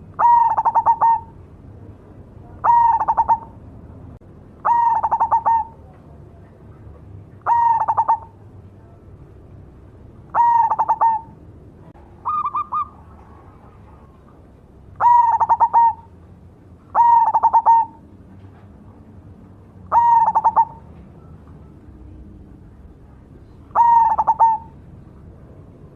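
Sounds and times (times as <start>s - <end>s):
dove cooing: 0.0s - 1.4s, 2.4s - 3.6s, 4.6s - 5.9s, 7.4s - 8.4s, 10.3s - 11.4s, 12.2s - 14.4s, 15.0s - 16.2s, 16.9s - 18.1s, 19.9s - 21.0s, 23.4s - 24.8s.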